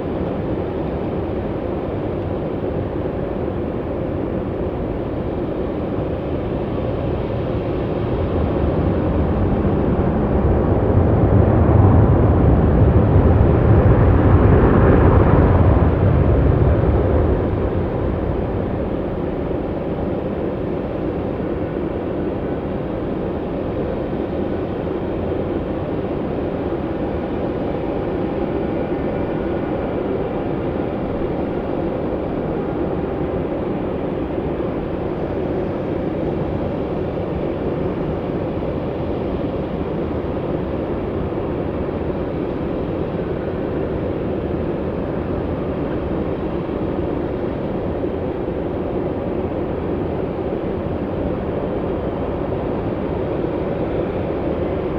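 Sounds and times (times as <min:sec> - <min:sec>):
jet engines running: 0:00.0 - 0:54.9.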